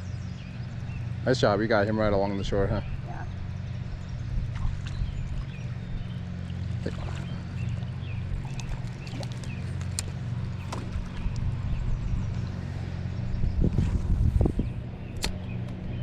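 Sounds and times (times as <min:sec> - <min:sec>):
low motor hum: 0:00.0 - 0:16.0
faint clicks and chirps: 0:08.5 - 0:10.2.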